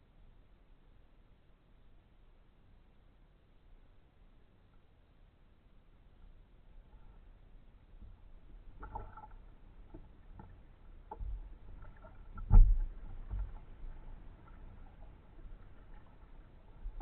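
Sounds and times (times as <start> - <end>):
kayak paddling: 6.7 - 17.0.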